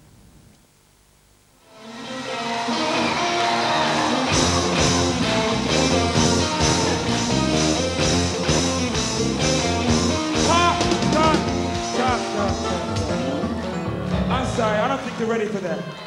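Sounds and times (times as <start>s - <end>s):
electric guitar rock music: 1.7s - 15.9s
steady drum beat: 4.3s - 14.9s.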